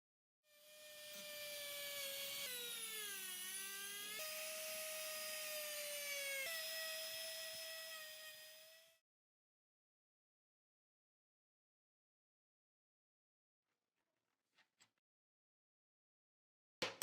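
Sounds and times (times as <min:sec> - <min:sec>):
electric power tool whining: 0:00.5 - 0:09.0.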